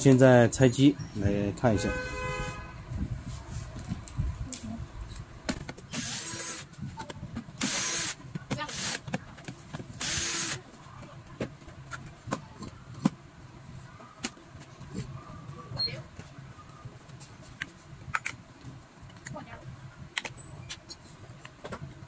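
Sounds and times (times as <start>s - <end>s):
electric screwdriver whirring: 5.9s - 6.7s, 7.6s - 9.0s, 10.0s - 10.6s.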